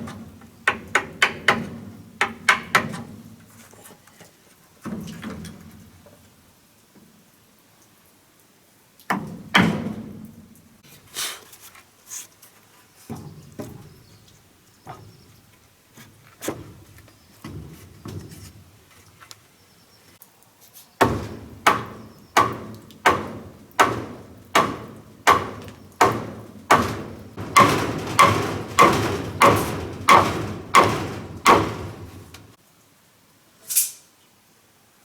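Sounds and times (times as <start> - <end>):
tool striking wood: 21.0 - 32.6.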